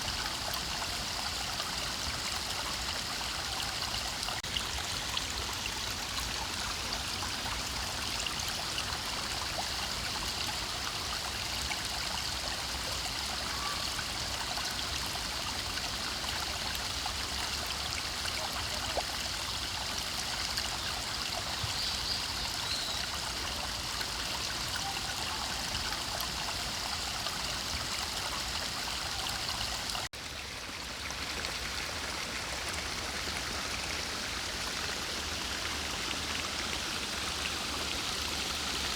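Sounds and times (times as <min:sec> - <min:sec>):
forest stream flowing: 0:00.0 - 0:38.9.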